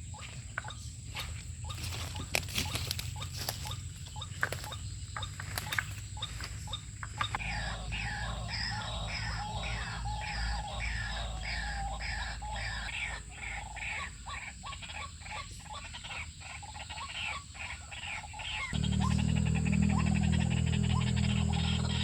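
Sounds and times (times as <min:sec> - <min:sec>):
steady low hum: 0:00.0 - 0:13.1, 0:18.7 - 0:22.0
waterhen croaking call: 0:00.0 - 0:22.0.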